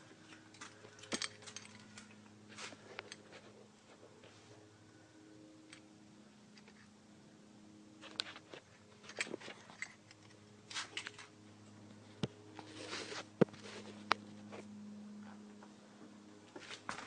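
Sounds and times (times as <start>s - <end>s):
low steady hum: 0.0s - 17.0s
faint clicks and rustles: 8.0s - 17.0s.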